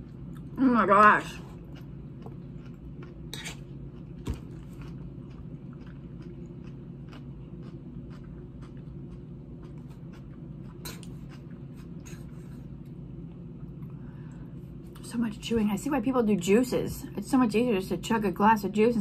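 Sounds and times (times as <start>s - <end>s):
low background hum: 0.0s - 19.0s
person chewing crunchy salad: 1.3s - 13.0s.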